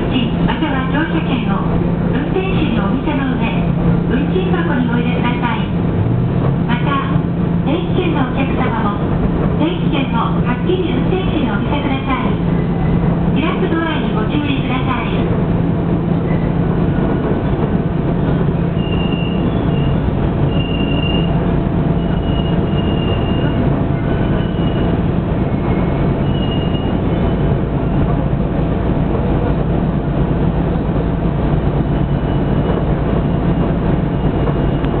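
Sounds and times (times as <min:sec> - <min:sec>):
railcar engine and wheel rumble: 0:00.0 - 0:35.0
high-pitched wheel squeals: 0:18.7 - 0:21.4, 0:22.0 - 0:24.9, 0:25.5 - 0:27.4.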